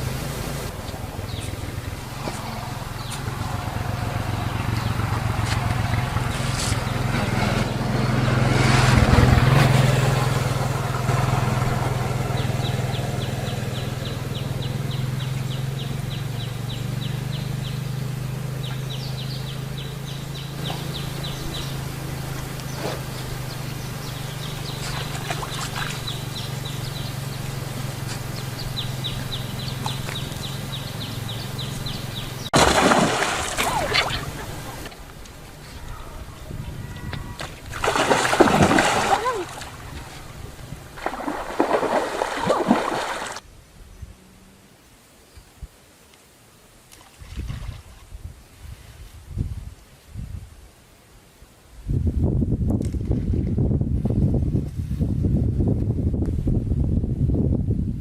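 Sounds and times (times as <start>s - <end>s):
low motor hum: 0.0s - 44.8s.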